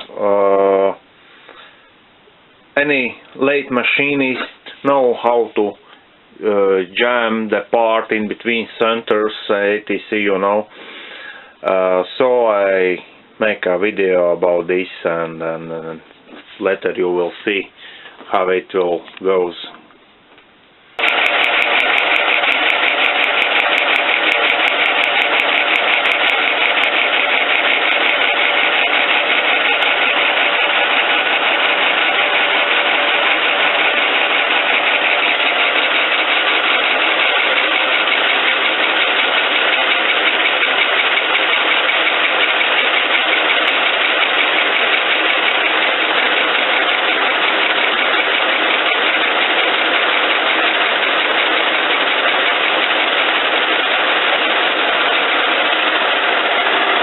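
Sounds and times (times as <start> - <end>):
lathe running: 21.0 - 57.0.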